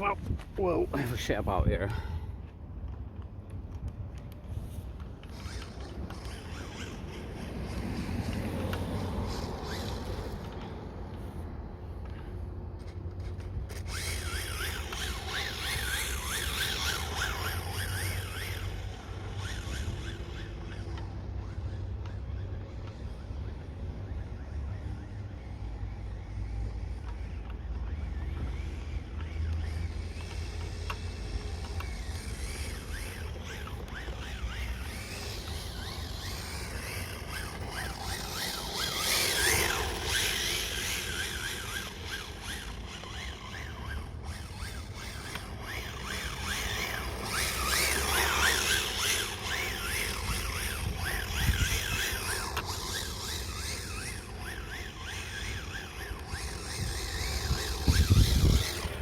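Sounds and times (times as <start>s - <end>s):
rc car motor whining: 0.0s - 59.0s.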